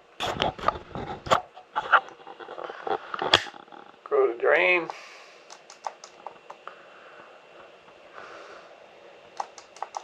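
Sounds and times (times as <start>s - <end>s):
computer mouse clicks: 5.4s - 6.6s, 9.3s - 10.0s.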